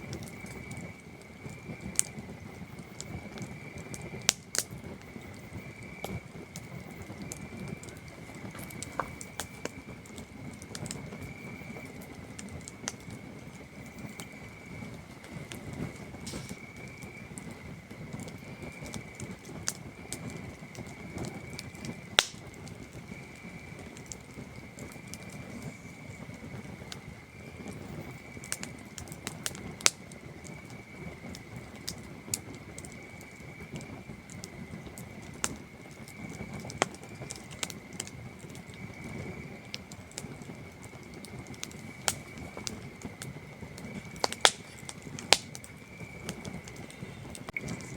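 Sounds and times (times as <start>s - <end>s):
campfire crackling and popping: 0.0s - 47.9s
crickets trilling: 0.0s - 47.9s.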